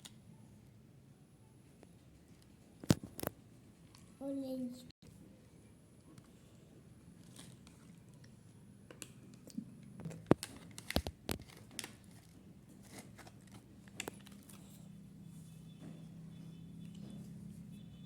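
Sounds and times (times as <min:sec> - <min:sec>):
plastic packaging crinkling and tearing: 0:10.0 - 0:14.6.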